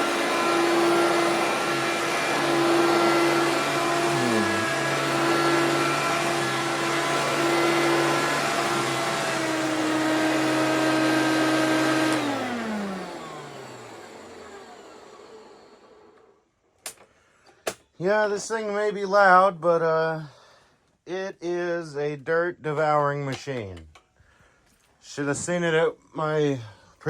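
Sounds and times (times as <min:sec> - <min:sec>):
vacuum cleaner running: 0:00.0 - 0:16.3
vacuum motor spinning down: 0:00.0 - 0:16.3.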